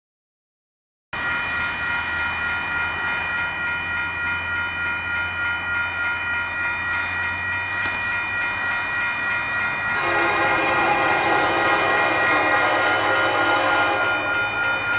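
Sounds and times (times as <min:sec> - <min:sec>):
sustained high-pitched tone: 0:01.2 - 0:14.9
train rumbling: 0:01.2 - 0:14.9.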